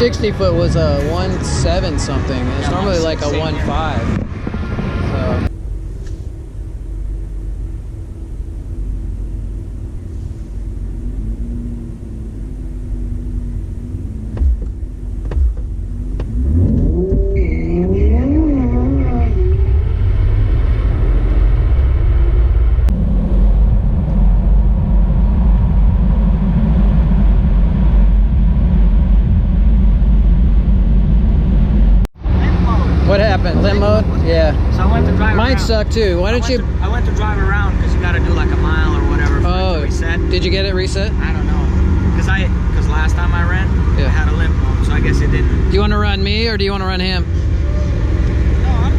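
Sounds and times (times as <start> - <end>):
car engine rumbling and revving: 0.0 - 48.9.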